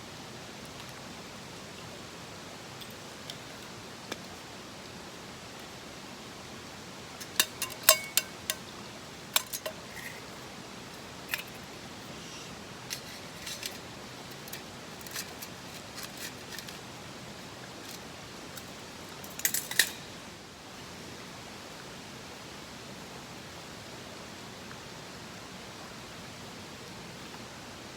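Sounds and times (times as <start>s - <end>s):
steady background hiss: 0.0s - 27.9s
metallic clinks and taps: 2.8s - 4.2s, 7.2s - 8.7s, 9.4s - 10.3s, 11.3s - 11.6s, 12.9s - 16.8s, 18.6s - 20.0s.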